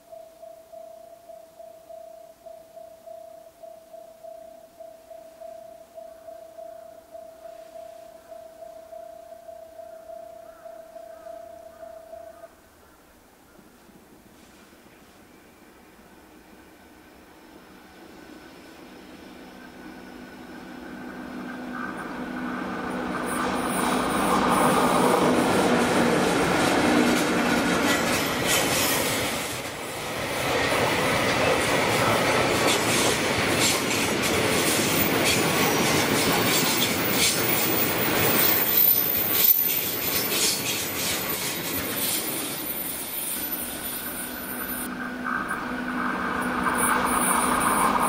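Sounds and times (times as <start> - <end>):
freight train rumbling past: 14.4 - 48.0
high wheel squeal: 18.6 - 25.9, 34.9 - 48.0.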